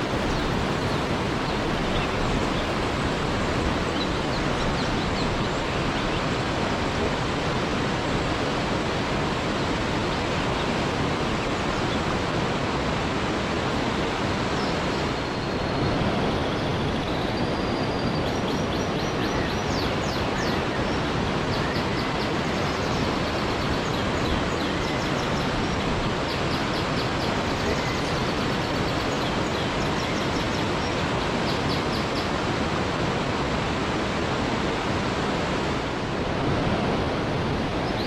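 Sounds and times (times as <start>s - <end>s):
waterfall roaring: 0.0s - 18.6s, 19.7s - 38.0s.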